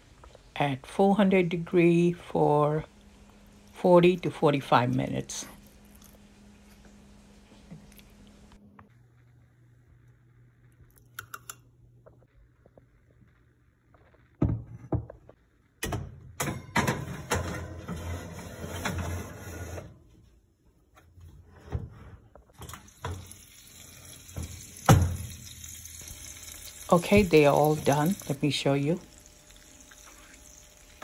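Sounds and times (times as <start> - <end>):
kitchen items clattering and rustling: 16.4 - 20.0.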